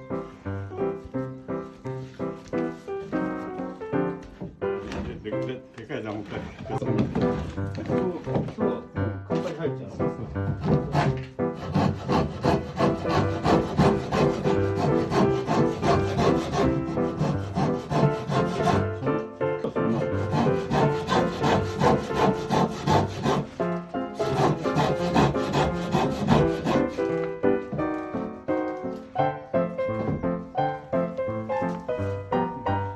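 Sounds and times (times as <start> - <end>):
background music: 6.8 - 32.9
hand saw sawing wood: 10.2 - 27.7.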